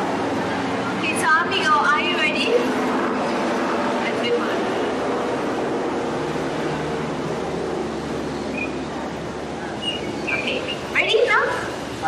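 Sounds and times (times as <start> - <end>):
high bird chirps: 8.5 - 8.9, 9.8 - 10.9.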